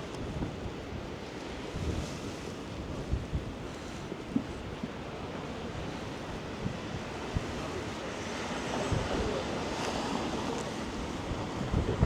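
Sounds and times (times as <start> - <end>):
rain on wet street: 9.8 - 11.6.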